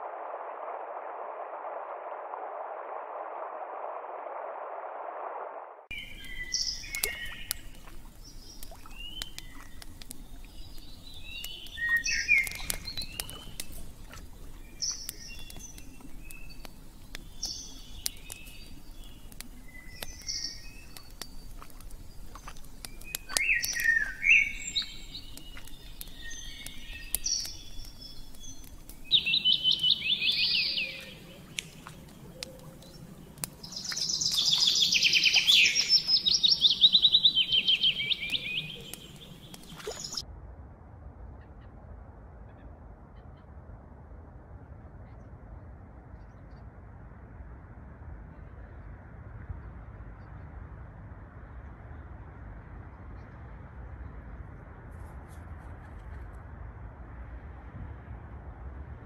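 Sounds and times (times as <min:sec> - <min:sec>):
bird trilling: 0:05.9 - 0:40.2
songbirds chirping: 0:05.9 - 0:40.2.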